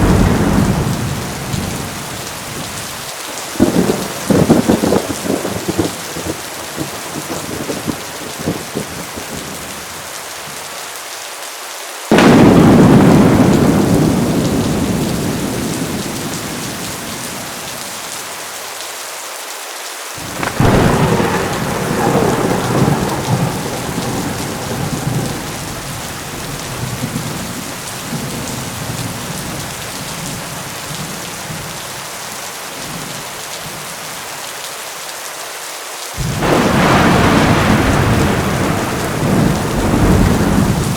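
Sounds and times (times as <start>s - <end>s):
thunderclaps: 0.0s - 9.8s, 12.1s - 18.1s, 20.2s - 31.8s, 36.2s - 40.9s
heavy rain falling: 0.0s - 40.9s.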